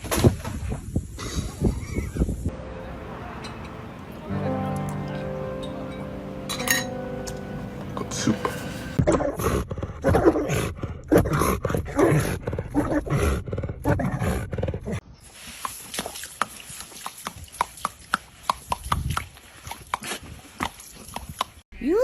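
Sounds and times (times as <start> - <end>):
dog vocalizing in rough bursts: 9.0 - 15.0.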